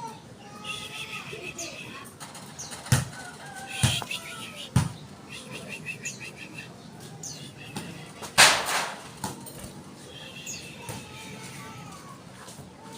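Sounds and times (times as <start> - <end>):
birds chirping: 0.0 - 11.5
birds whistling: 2.6 - 8.0, 10.2 - 10.9.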